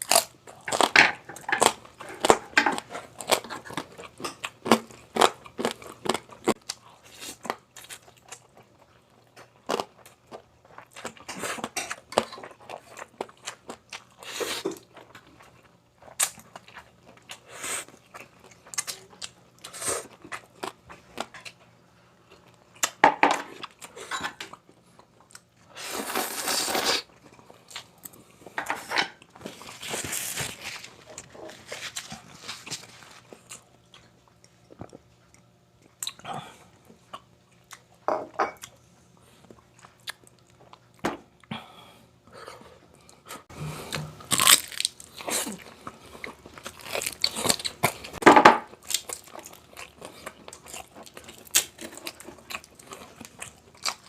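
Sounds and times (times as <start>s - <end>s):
crunching and chewing: 0.0s - 28.6s, 29.2s - 41.5s, 42.5s - 54.0s.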